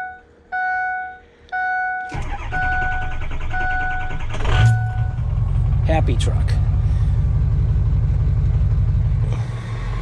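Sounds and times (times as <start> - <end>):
truck warning chime: 0.0 - 5.2
truck engine starting and running: 0.0 - 10.0.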